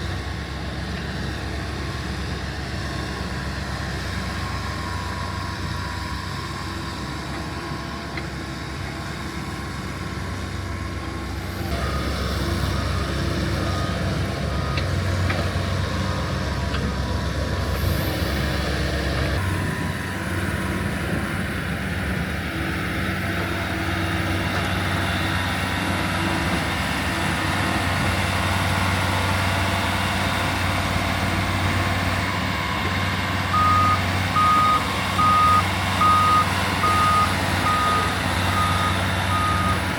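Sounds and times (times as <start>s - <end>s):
heavy machine engine running: 0.0s - 39.9s
reversing alarm beeping: 11.5s - 16.4s, 31.6s - 39.9s.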